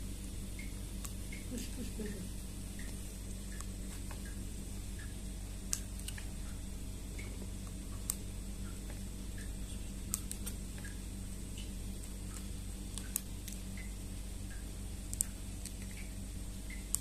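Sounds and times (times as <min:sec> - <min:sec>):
low electrical hum: 0:00.0 - 0:17.0
sharp clicks and ticks: 0:02.7 - 0:06.6, 0:07.2 - 0:17.0.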